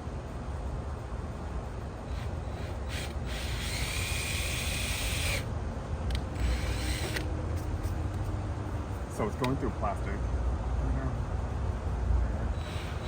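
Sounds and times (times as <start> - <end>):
power drill boring through plastic: 2.1 - 5.4, 6.4 - 7.3, 12.6 - 13.0.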